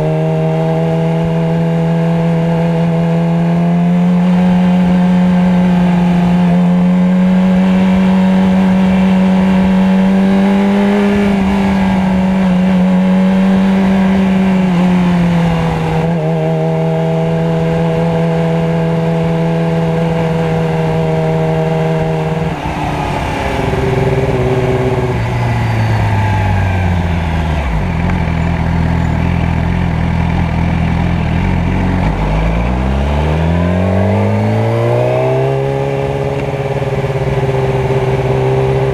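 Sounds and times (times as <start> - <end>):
motorcycle engine: 0.0 - 38.9.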